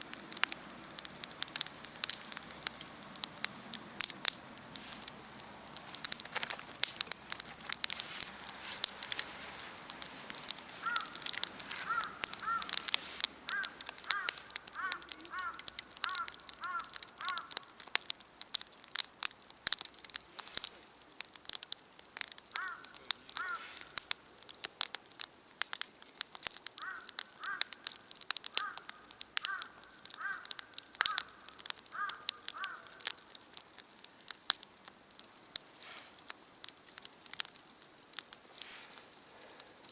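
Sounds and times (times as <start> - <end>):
campfire crackling and popping: 0.0 - 39.9
crow cawing: 10.6 - 17.8, 22.5 - 24.0, 26.8 - 33.2.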